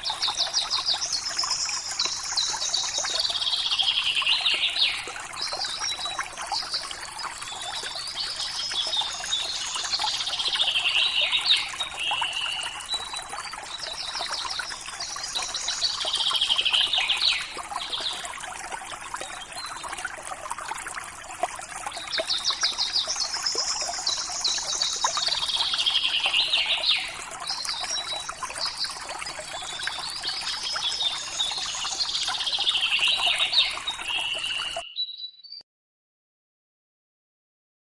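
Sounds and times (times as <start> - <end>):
river water trickling: 0.0 - 35.3.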